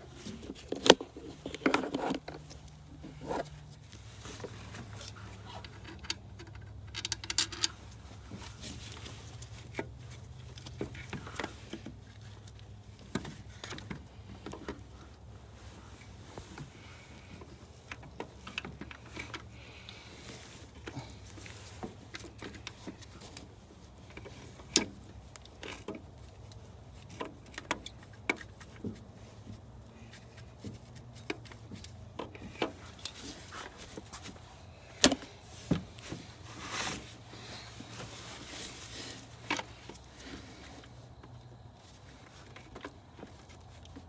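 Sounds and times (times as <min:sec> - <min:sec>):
hand tools clicking and knocking: 0:05.6 - 0:07.8.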